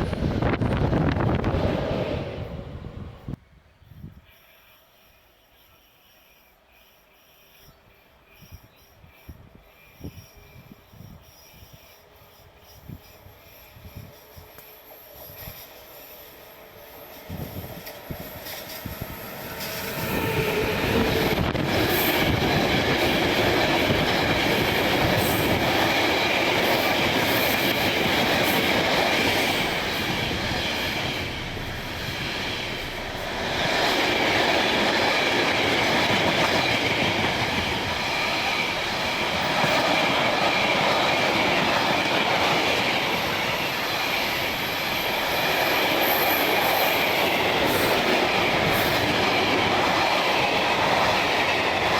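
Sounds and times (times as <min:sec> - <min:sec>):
train wheels clattering over rails: 0:16.9 - 0:51.9.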